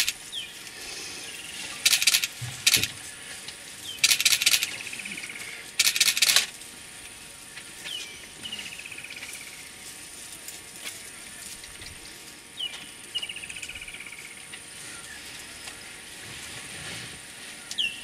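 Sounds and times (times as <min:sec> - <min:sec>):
bird calling: 0:00.0 - 0:00.6, 0:01.2 - 0:02.9, 0:03.8 - 0:06.5.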